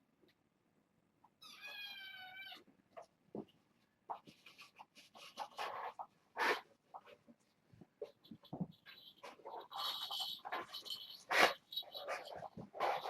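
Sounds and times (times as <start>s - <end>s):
handling rustles and knocks: 7.0s - 13.0s.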